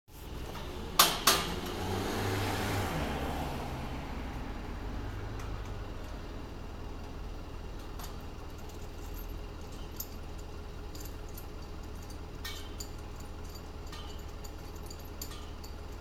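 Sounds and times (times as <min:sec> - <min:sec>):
metal scaffolding pipes clinking: 0:00.4 - 0:02.0, 0:07.8 - 0:16.0.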